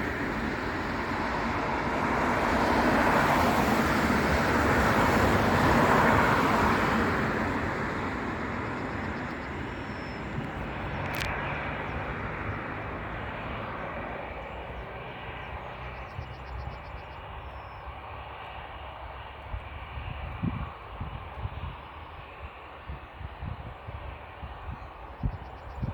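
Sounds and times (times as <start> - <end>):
jet engines roaring: 0.0 - 25.1.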